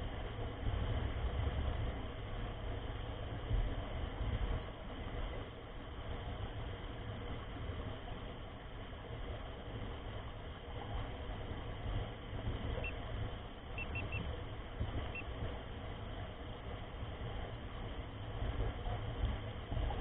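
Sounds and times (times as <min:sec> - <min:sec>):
faint high chirps: 0:13.8 - 0:14.3.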